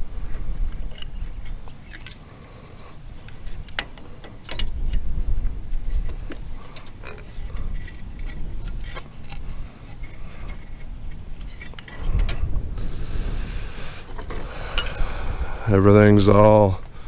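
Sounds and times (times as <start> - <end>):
wind rumble on microphone: 0.0 - 1.9, 4.5 - 17.0
wrench clinking on metal nuts: 14.8 - 15.1.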